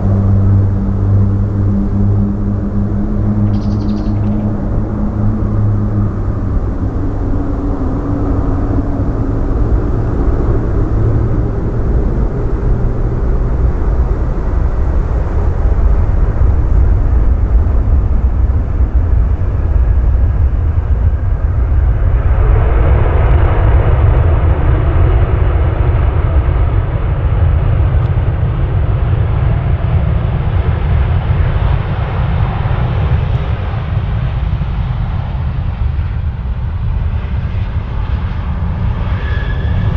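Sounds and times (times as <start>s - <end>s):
high rushing noise: 0.0s - 24.1s
jet engines rumbling: 0.0s - 39.9s.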